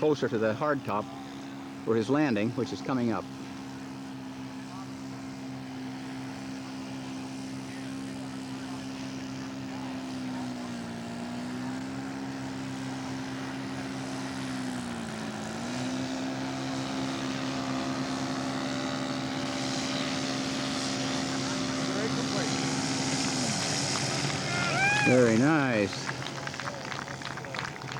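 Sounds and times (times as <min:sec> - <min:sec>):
model airplane engine and propeller: 0:00.0 - 0:27.9.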